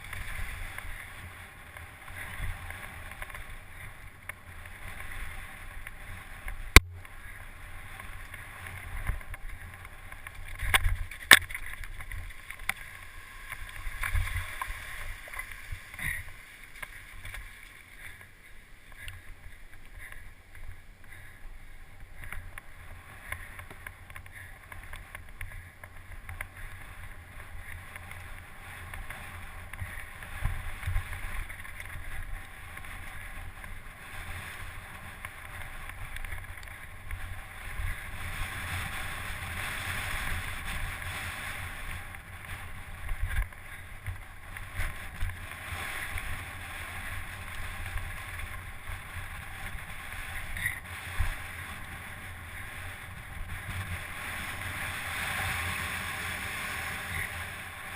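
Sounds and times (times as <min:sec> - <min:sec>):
bike tyres rolling hiss: 0:00.0 - 0:57.9.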